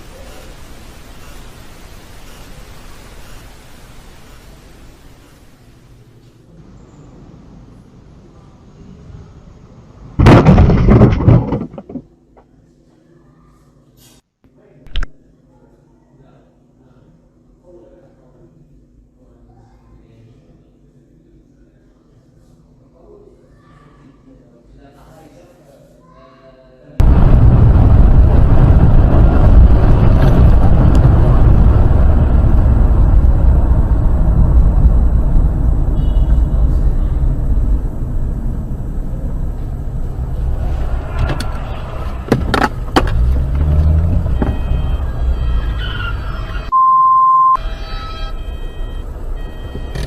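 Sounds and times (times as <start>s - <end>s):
road and wind noise: 0.0s - 12.0s, 27.0s - 46.7s, 47.6s - 50.0s
sharp knocks: 10.2s - 12.0s
short single-tone bleep: 46.7s - 50.0s.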